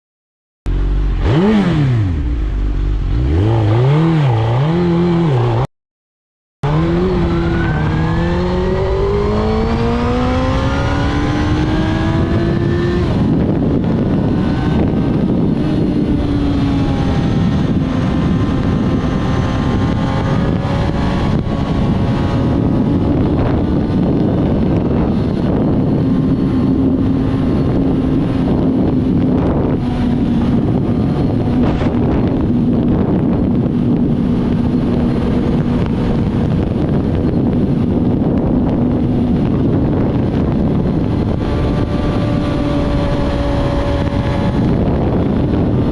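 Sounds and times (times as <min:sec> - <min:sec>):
motorcycle engine revving: 0:00.7 - 0:05.7, 0:06.6 - 0:45.9
wind rush: 0:06.6 - 0:45.9.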